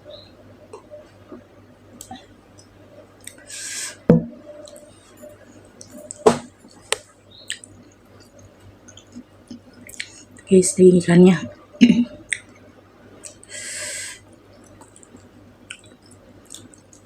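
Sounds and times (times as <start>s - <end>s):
wet mouth chewing sounds: 7.5s - 10.5s, 14.6s - 17.0s.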